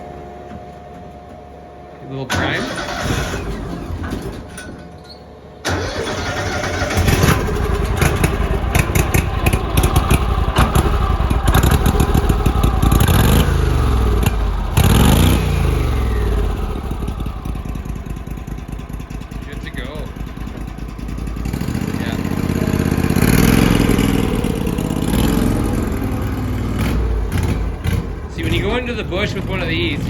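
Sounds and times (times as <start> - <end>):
engine starting and running unevenly: 0.0 - 30.0.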